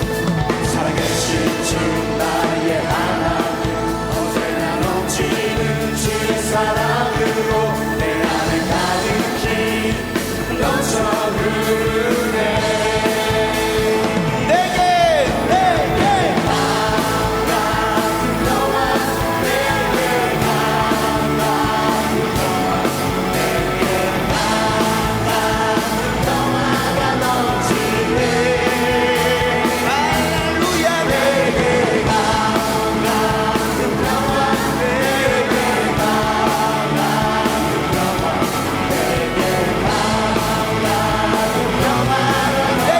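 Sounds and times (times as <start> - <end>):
praise band music with singing: 0.0 - 42.9
rock drum beat: 0.0 - 42.9.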